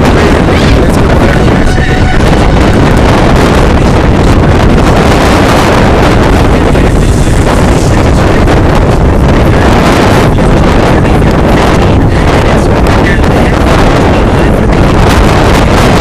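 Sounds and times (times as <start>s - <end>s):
strong wind on microphone: 0.0s - 16.0s.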